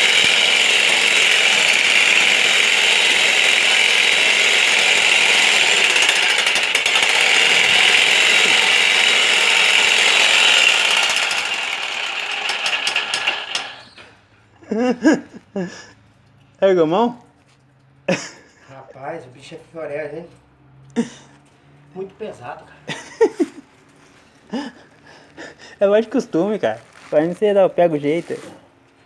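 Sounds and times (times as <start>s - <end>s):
demolition hammer breaking masonry: 0.0s - 13.9s.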